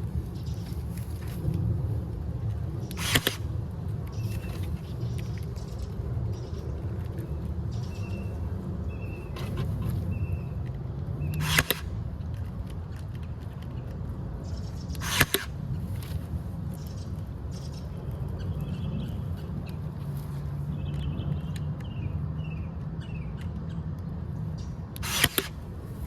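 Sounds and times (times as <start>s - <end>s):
low rumble: 0.0s - 9.3s
bird chirping: 4.1s - 10.6s.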